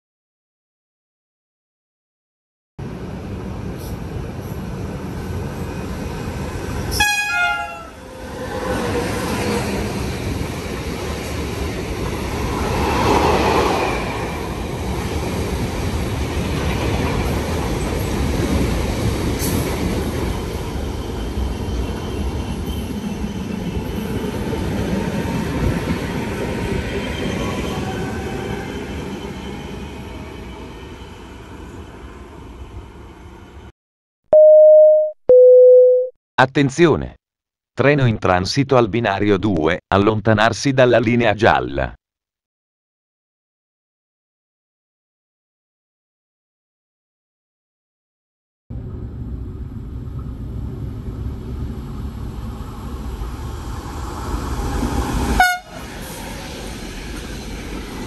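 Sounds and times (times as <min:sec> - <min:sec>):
passing train rumble: 0:02.8 - 0:33.7, 0:48.7 - 0:58.0
train horn blast: 0:06.9 - 0:08.0, 0:55.4 - 0:55.9.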